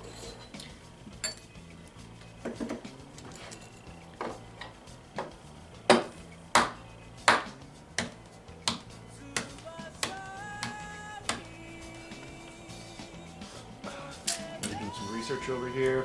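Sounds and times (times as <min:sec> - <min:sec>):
glassware clinking: 0:00.0 - 0:07.6.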